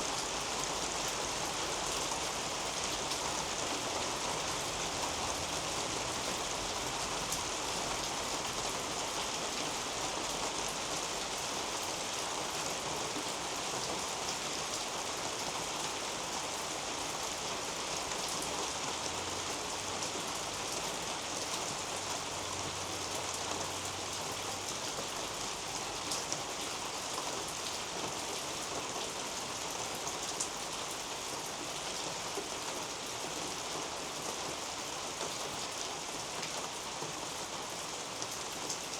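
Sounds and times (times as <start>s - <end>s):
rain falling on leaves: 0.0s - 38.9s.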